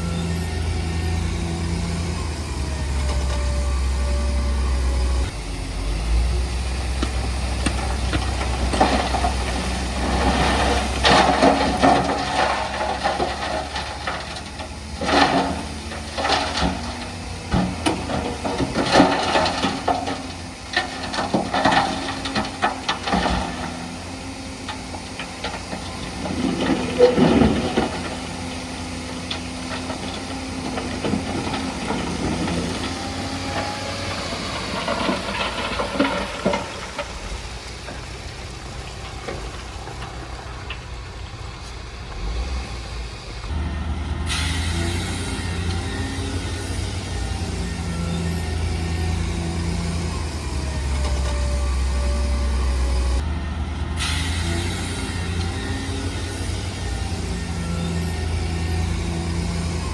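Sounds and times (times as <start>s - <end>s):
diesel engine running: 0.0s - 59.9s
rattling and clanking of rock: 6.7s - 42.6s, 44.4s - 53.2s.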